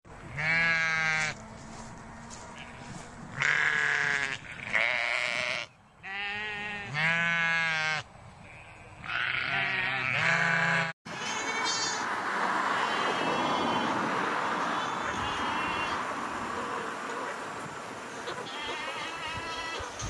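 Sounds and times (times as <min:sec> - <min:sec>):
sheep bleating: 0:00.3 - 0:01.4, 0:02.6 - 0:12.0, 0:12.8 - 0:14.0, 0:14.6 - 0:16.0, 0:18.4 - 0:19.9.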